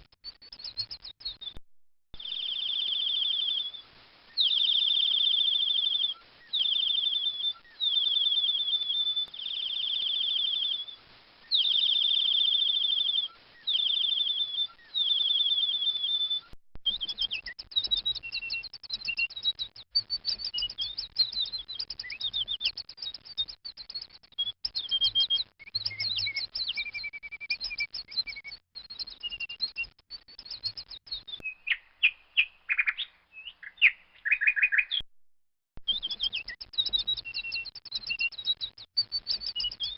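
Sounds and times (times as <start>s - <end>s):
young bird calling: 31.4s - 35.0s.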